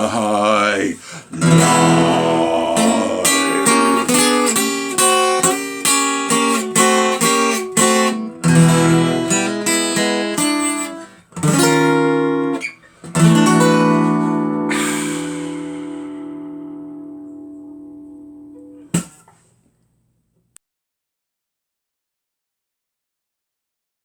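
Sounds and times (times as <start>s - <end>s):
acoustic guitar strumming: 0.0s - 19.2s.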